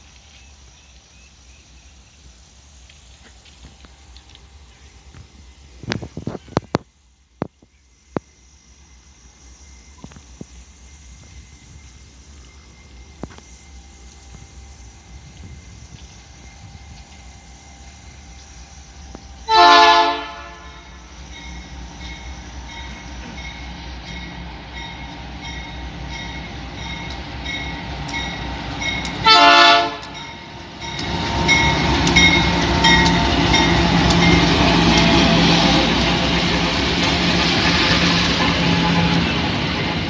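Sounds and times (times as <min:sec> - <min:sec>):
train engine and wheels: 0:00.0 - 0:40.0
train horn blasts: 0:19.4 - 0:21.1, 0:29.1 - 0:30.4, 0:38.3 - 0:39.4.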